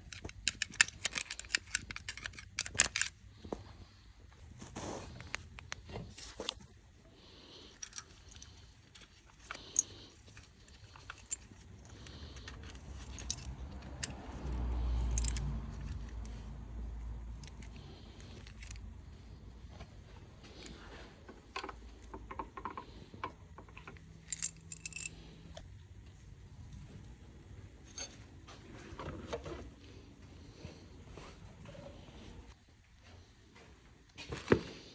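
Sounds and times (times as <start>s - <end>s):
metal tools clinking: 0.0s - 3.2s, 7.7s - 16.4s, 23.8s - 25.3s, 27.8s - 28.3s.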